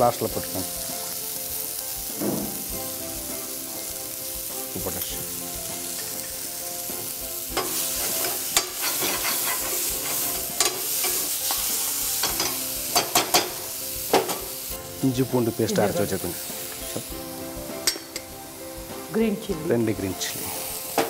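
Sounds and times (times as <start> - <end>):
masala sizzling in a frying pan: 0.0 - 21.0
metal spoon scraping a pan: 7.5 - 14.5.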